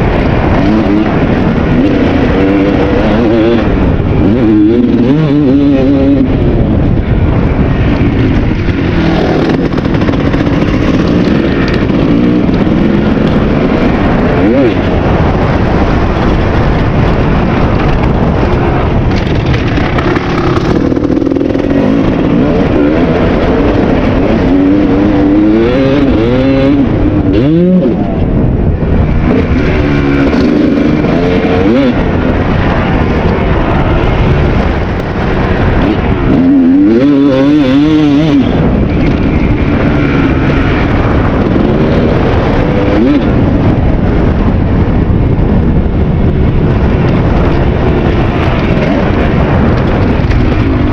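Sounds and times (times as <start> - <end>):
two-stroke motorcycle engine revving: 0.0 - 50.9.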